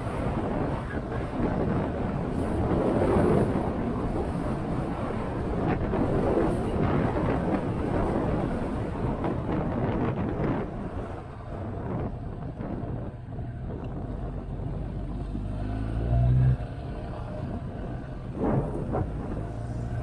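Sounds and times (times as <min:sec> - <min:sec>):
wind rushing over microphone: 0:00.0 - 0:20.0
motorcycle engine hum: 0:16.5 - 0:20.0.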